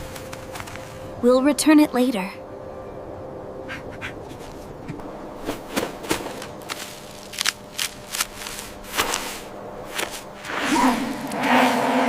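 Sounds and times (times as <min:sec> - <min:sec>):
faint steady hum: 0:00.0 - 0:12.0
sharp snaps or crunches: 0:05.8 - 0:11.6.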